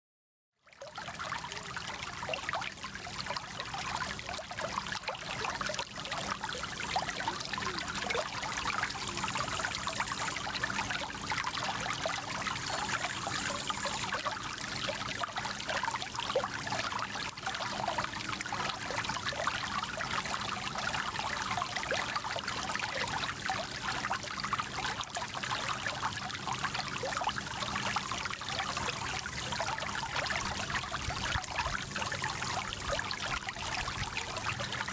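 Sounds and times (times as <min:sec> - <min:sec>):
small stream trickling: 0:00.6 - 0:34.9.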